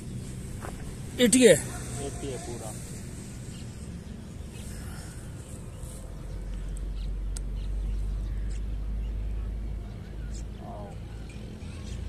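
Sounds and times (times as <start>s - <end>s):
steady low rumble: 0.0s - 12.0s
faint bird chirps: 3.4s - 12.0s.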